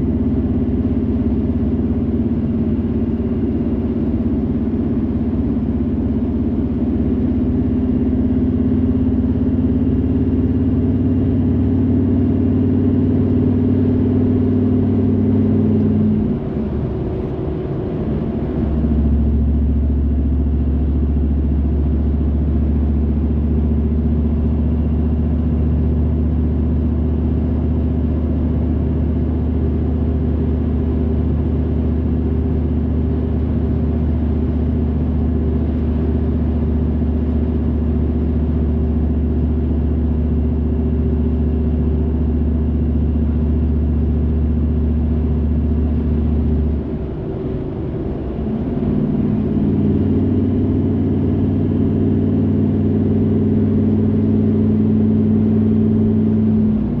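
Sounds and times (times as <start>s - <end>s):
car engine and road drone: 0.0s - 57.0s.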